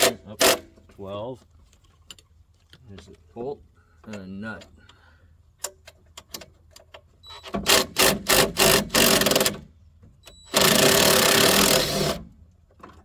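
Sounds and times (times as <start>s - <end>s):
power tool spinning off bolts: 7.7s - 9.5s, 10.5s - 12.2s.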